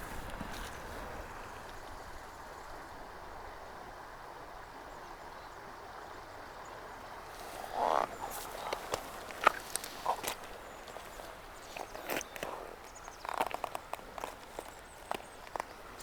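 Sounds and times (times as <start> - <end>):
mountain stream rushing: 6.8 - 16.0
footsteps over rocks and brush: 7.3 - 16.0.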